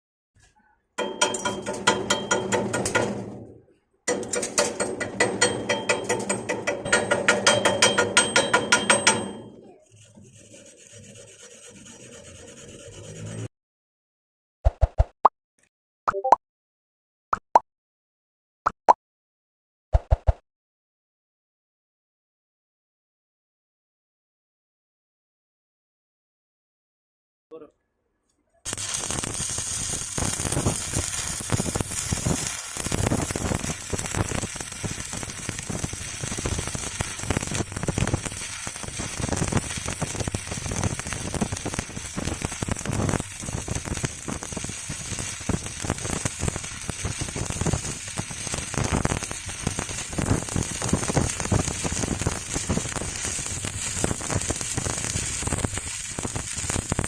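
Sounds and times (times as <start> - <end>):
arc welding crackling: 28.7 - 57.0.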